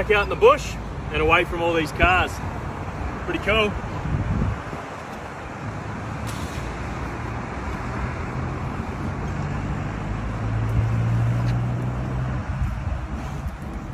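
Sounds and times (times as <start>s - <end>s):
road traffic: 0.0s - 13.9s.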